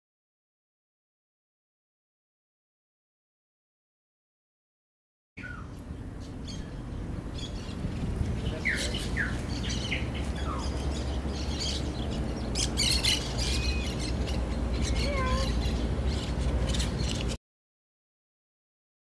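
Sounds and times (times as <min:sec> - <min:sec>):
birds chirping: 0:05.4 - 0:17.4
steady low rumble: 0:05.5 - 0:17.4
harsh squawking bird calls: 0:08.4 - 0:17.4.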